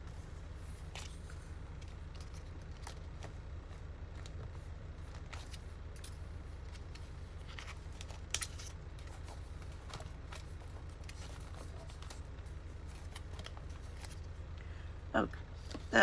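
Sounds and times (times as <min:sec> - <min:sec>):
steady low hum: 0:00.0 - 0:16.0
paper rustling: 0:05.1 - 0:14.4.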